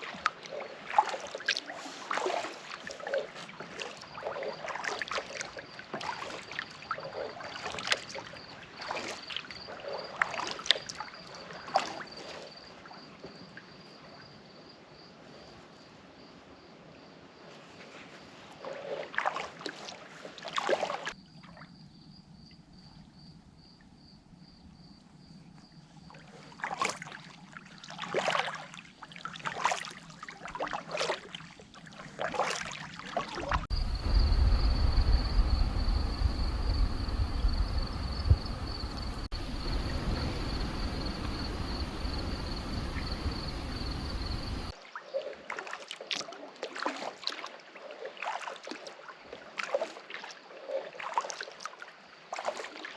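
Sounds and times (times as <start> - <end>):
paddle splashing in water: 0.0 - 8.2, 33.4 - 44.8
wind rumble on microphone: 33.5 - 44.7
high insect trill: 33.7 - 44.7.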